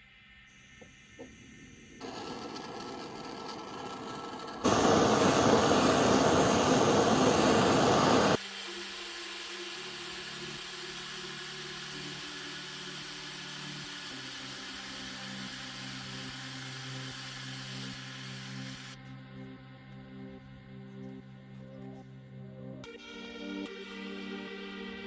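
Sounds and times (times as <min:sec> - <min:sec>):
power tool motor running: 0:02.0 - 0:08.4
soft background music: 0:08.4 - 0:25.0.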